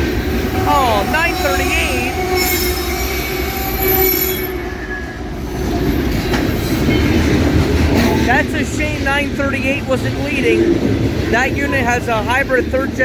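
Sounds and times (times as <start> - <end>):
train wheels rumbling: 0.0 - 13.0
high-pitched wheel squeals: 0.4 - 5.4.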